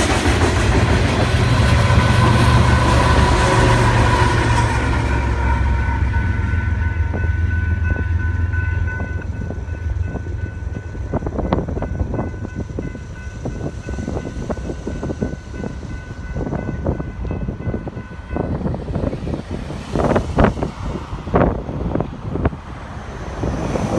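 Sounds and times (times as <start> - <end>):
freight train rumble on rails: 0.0 - 23.9
steady high ringing tone: 2.7 - 19.1.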